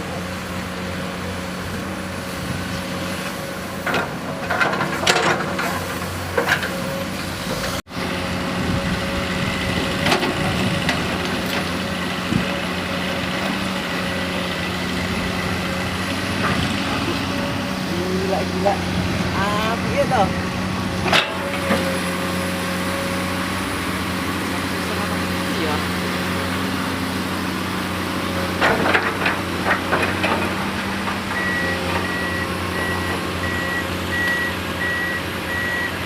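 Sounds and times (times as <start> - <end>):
diesel engine running: 0.0 - 36.0
metallic clanks and knocks: 3.8 - 6.8, 21.0 - 21.9, 28.6 - 31.3.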